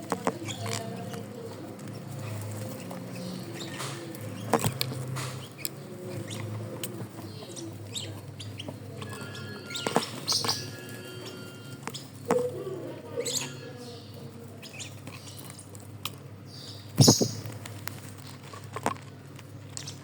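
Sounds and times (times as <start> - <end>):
bird clucking and chirping: 0.3 - 15.4, 17.0 - 17.4.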